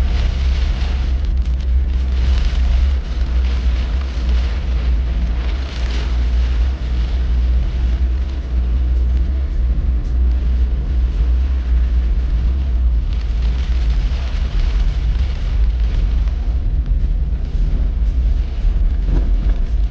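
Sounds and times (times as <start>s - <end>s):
deep rumble: 0.0s - 19.9s
heavy rain hissing: 0.0s - 19.9s
wind buffeting microphone: 0.0s - 19.9s.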